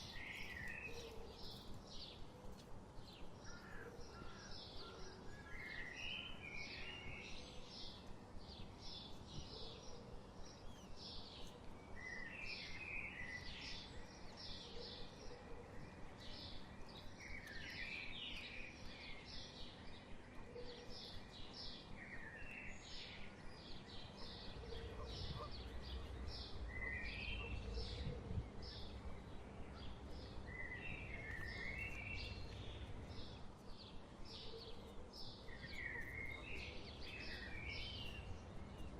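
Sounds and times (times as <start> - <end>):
birds chirping: 22.3 - 38.9.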